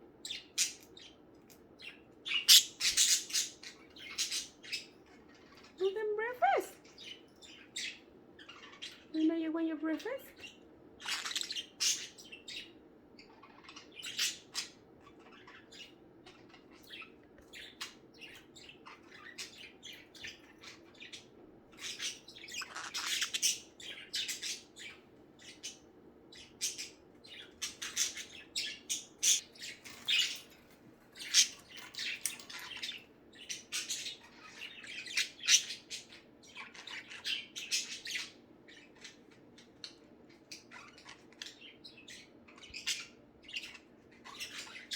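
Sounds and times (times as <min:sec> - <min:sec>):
budgerigars chattering: 0:02.3 - 0:04.9, 0:10.4 - 0:25.8, 0:26.4 - 0:30.4.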